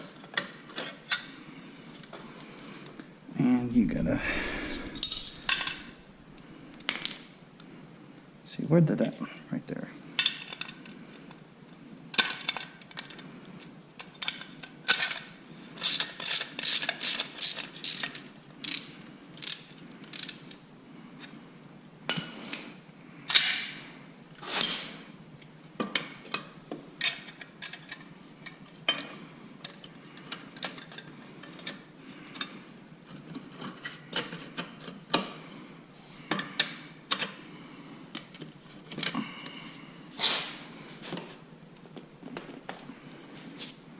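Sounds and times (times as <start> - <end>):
ratchet wrench clicking: 15.8 - 20.4.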